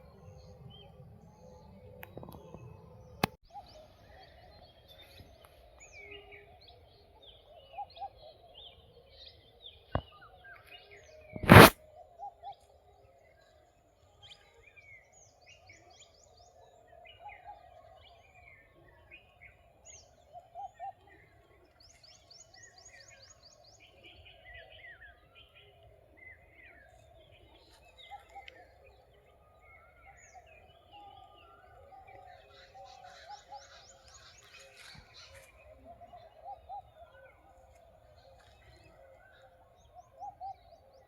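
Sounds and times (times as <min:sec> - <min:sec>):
wild birds calling: 0:27.2 - 0:41.0.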